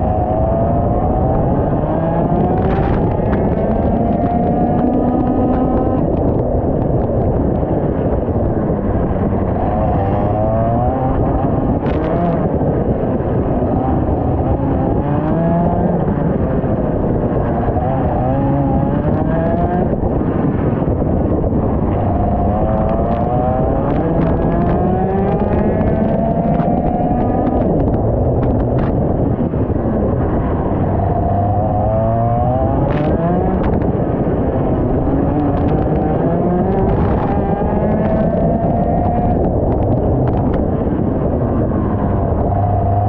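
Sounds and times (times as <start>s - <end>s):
dense rough noise: 0.0s - 43.0s
kart engine revving: 9.2s - 43.0s.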